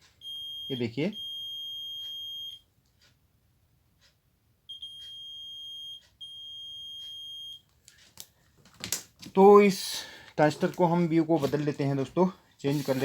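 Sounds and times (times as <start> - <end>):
multimeter continuity beep: 0.1 - 2.7, 4.7 - 7.6.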